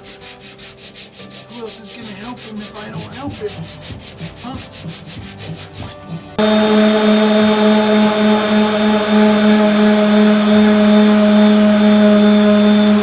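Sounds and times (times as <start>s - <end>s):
power tool motor humming: 2.7s - 13.0s.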